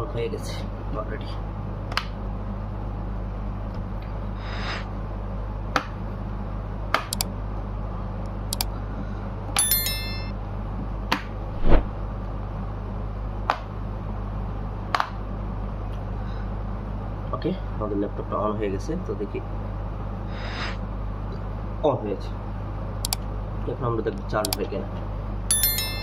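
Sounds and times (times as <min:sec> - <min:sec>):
low electrical hum: 0:00.0 - 0:26.0
electronic chime: 0:09.6 - 0:10.3, 0:25.5 - 0:26.0.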